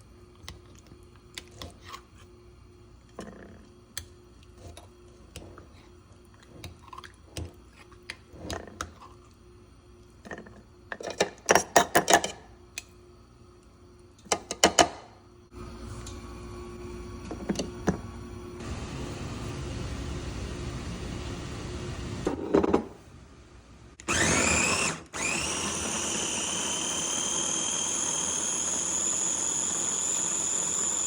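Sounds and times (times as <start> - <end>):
kitchen appliance humming: 13.5 - 31.0.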